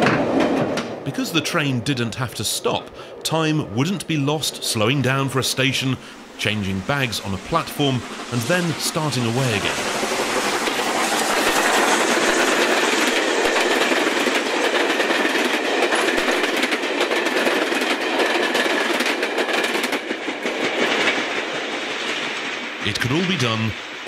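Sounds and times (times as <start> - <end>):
train passing at speed: 0.0 - 24.0
wheels clattering over rails: 6.6 - 23.3.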